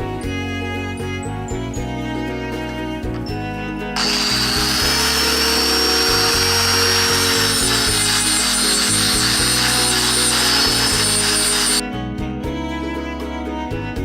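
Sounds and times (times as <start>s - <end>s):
background music: 0.0s - 14.0s
buffing wheel whining: 4.0s - 11.8s.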